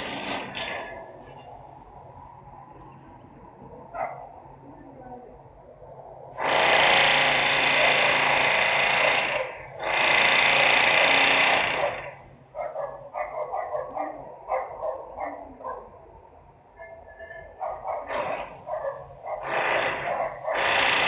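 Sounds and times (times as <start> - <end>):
loud industrial machine noise: 0.0 - 1.4, 6.3 - 12.3, 18.1 - 18.7, 19.4 - 21.0
dog barking: 3.9 - 4.4, 11.8 - 16.0, 17.5 - 20.7.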